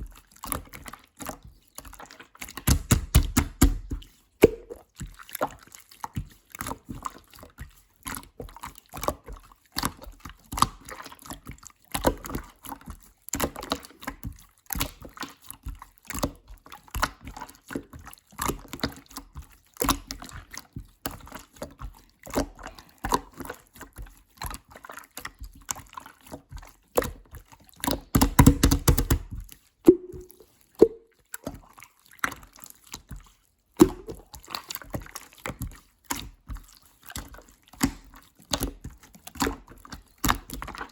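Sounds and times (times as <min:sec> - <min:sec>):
slime squishing and popping: 0:02.5 - 0:04.8, 0:27.9 - 0:31.0, 0:33.8 - 0:35.0.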